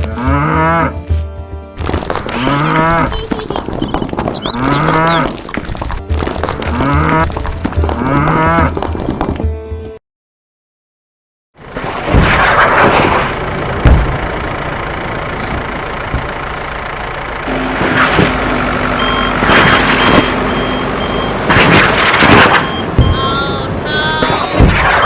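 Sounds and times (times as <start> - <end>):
heavy vehicle engine running: 11.6 - 25.0
reversing alarm beeping: 17.5 - 24.3.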